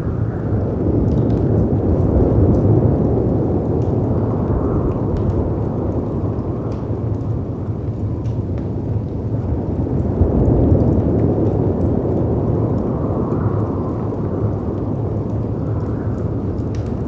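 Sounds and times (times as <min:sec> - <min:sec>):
wind rushing: 0:00.0 - 0:07.8
fireplace crackles and pops: 0:00.0 - 0:17.0.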